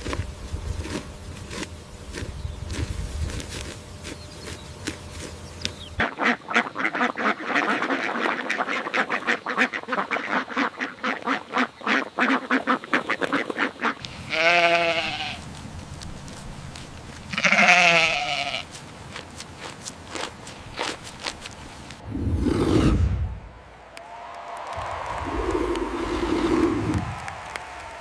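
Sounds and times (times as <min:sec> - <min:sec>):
wavering bleat-like calls: 0:14.1 - 0:15.4, 0:17.3 - 0:18.7.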